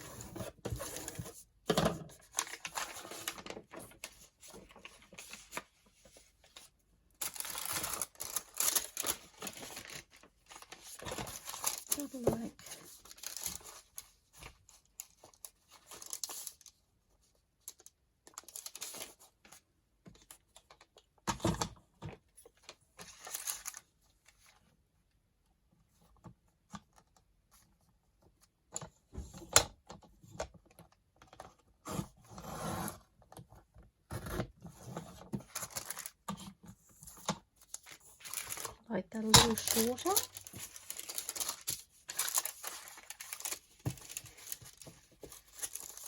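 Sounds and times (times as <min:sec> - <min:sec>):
paper rustling and tearing: 0:07.2 - 0:16.6, 0:35.4 - 0:36.2, 0:37.7 - 0:38.8, 0:39.4 - 0:46.0.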